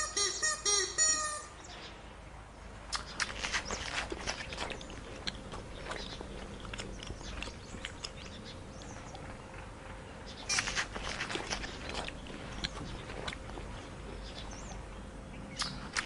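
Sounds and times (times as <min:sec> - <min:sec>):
faint steady hum: 0:00.0 - 0:16.0
animal chewing crunchily: 0:02.9 - 0:15.0.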